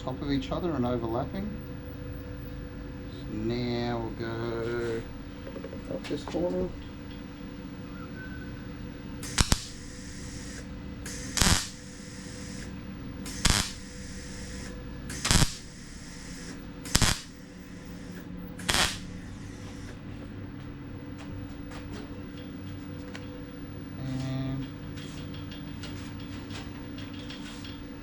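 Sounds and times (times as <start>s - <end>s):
steady low hum: 0.0s - 28.0s
welder crackling bursts: 9.2s - 20.2s.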